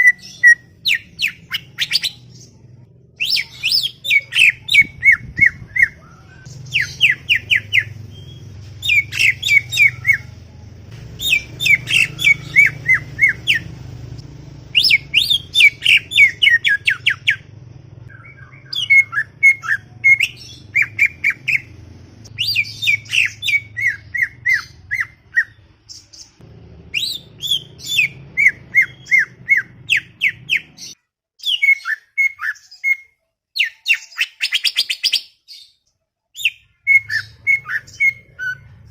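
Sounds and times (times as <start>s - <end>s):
faint low hum: 0.5s - 31.0s
bird singing sharp sliding notes: 11.2s - 13.8s.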